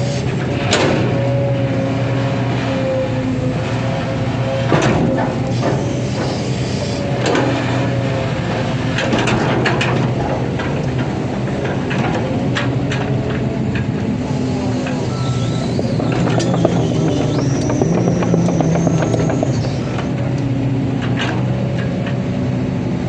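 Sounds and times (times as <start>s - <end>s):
hydraulic whine: 0.0s - 9.5s, 10.4s - 22.0s
diesel engine running: 0.0s - 23.0s
metallic clanks and knocks: 15.6s - 22.2s.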